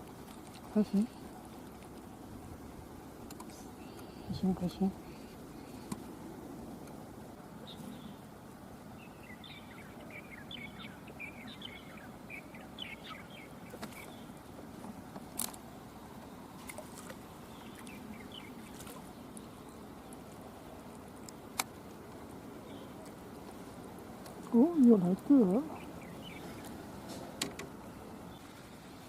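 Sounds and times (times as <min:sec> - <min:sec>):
bird chirps: 0:09.0 - 0:14.3.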